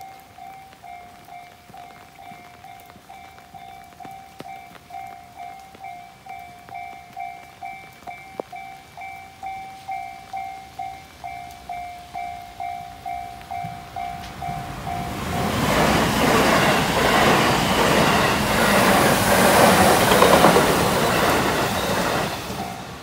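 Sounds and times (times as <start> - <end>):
level-crossing bell dinging: 0.0 - 23.0
train rumbling past: 0.4 - 23.0
train wheel clatter: 13.1 - 23.0.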